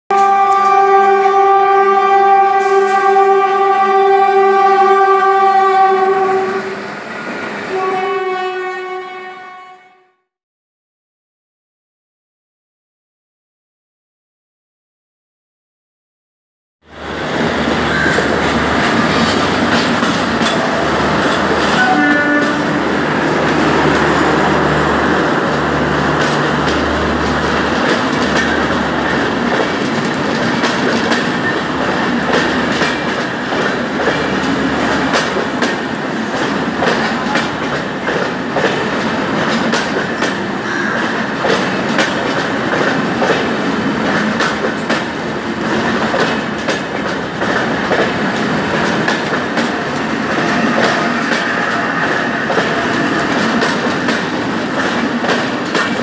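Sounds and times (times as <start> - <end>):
train rumbling: 0.1 - 9.5, 16.9 - 56.0
wheels clacking over rail joints: 17.2 - 56.0.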